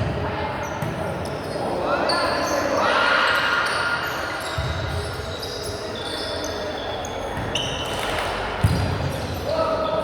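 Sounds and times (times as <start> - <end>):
sneakers squeaking on court floor: 3.6 - 10.0.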